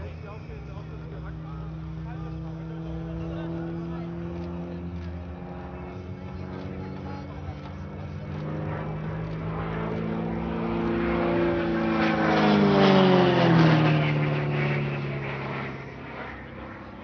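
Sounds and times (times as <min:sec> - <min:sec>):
propeller plane passing: 0:00.0 - 0:17.0.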